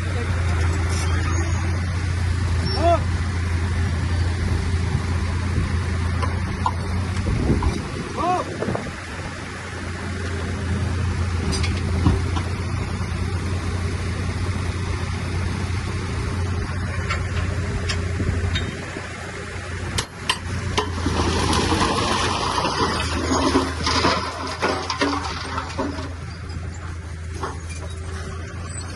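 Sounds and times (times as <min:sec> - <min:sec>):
heavy diesel machine engine: 0:00.0 - 0:28.9
rock and debris rushing: 0:20.0 - 0:28.9.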